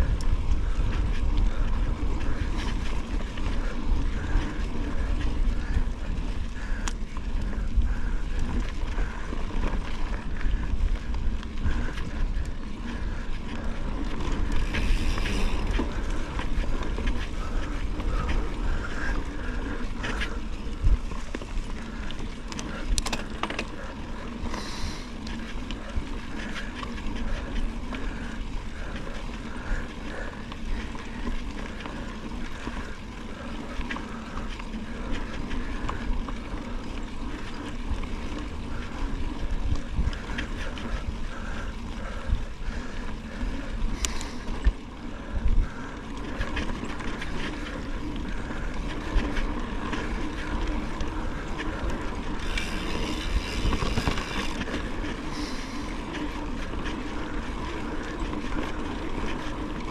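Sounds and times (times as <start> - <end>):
wind on microphone: 0.0 - 9.2, 10.1 - 21.2, 52.2 - 56.0
tyres rumbling on trail: 0.0 - 59.9
faint repeating tick: 6.8 - 7.0.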